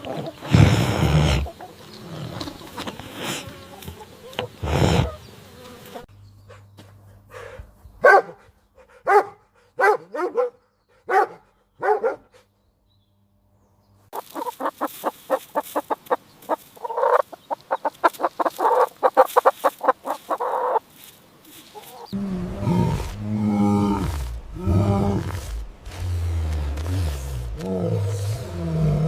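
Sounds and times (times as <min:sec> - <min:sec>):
poultry calling: 0:00.0 - 0:06.6, 0:14.1 - 0:26.1.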